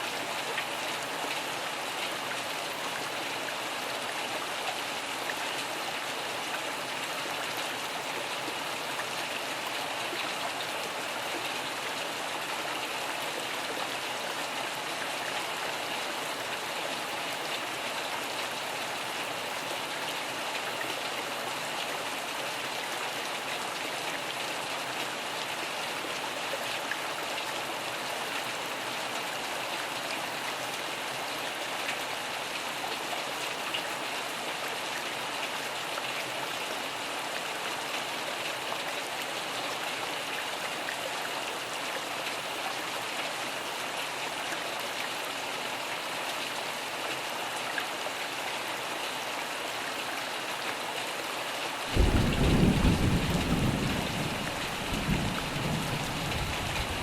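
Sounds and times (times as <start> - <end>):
rain falling: 0.0 - 57.0
loud thunder rumble: 52.0 - 57.0.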